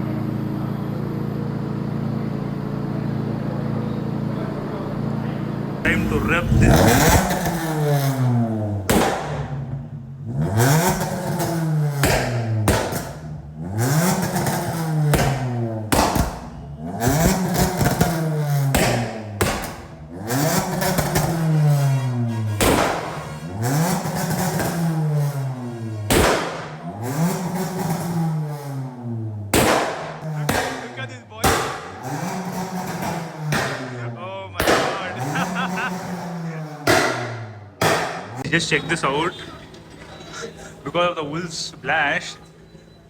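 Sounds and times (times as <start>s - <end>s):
car engine revving hard: 5.9s - 39.3s
loud exhaust bangs: 5.9s - 42.7s.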